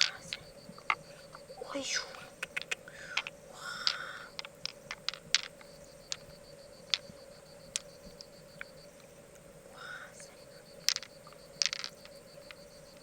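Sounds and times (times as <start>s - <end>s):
faint steady hum: 0.0s - 13.0s
hard objects clicking together: 2.3s - 6.3s, 10.8s - 12.6s.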